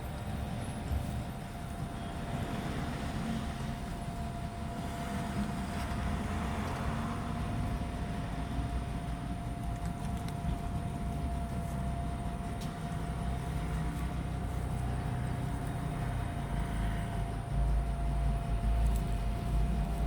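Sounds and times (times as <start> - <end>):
low hum with whine: 0.0 - 20.0.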